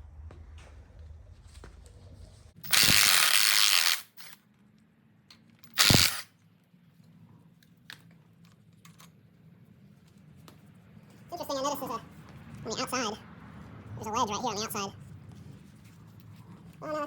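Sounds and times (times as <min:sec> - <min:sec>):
ratchet wrench clicking: 0:02.6 - 0:04.4, 0:05.6 - 0:06.3.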